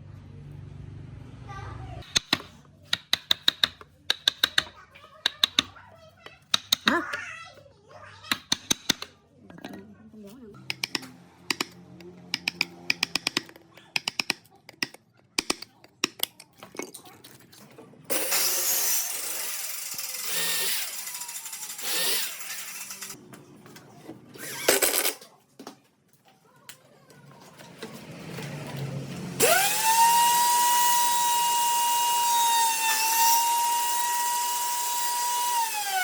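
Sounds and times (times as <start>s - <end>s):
power tool running: 18.1s - 23.2s, 28.3s - 36.0s.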